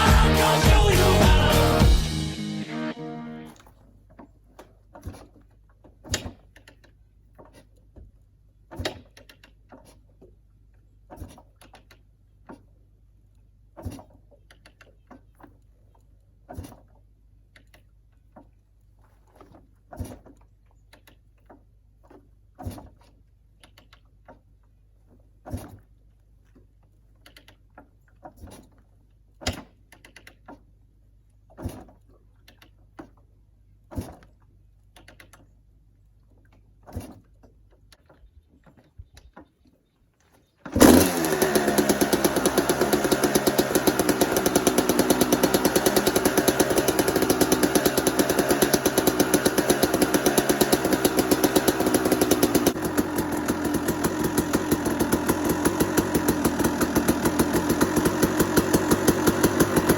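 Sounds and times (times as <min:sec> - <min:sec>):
dirt bike engine starting and running: 0:00.0 - 0:05.3, 0:40.6 - 0:59.9.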